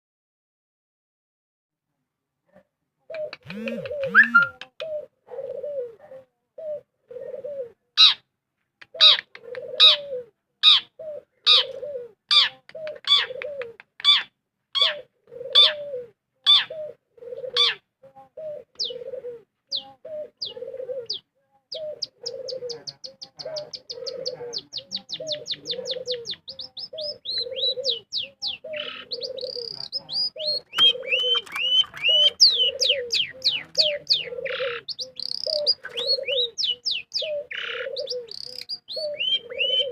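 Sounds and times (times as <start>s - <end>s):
bird trills and chatter: 3.1s - 5.6s, 10.6s - 15.8s, 16.4s - 39.9s
bird low hooting: 3.2s - 6.0s, 9.0s - 12.2s, 14.8s - 17.8s, 18.4s - 39.9s.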